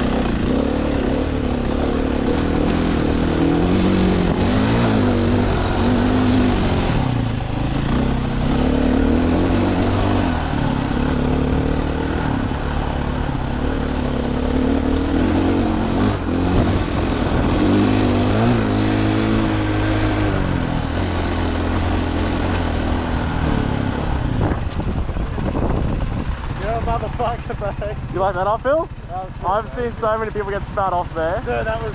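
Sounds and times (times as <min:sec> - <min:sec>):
dirt bike engine revving: 0:00.0 - 0:24.6.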